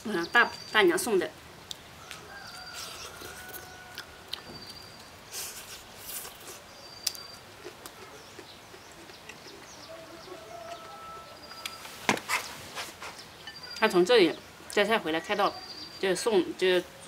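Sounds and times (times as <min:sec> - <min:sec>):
high bird chirps: 0:08.2 - 0:12.5, 0:13.2 - 0:14.0.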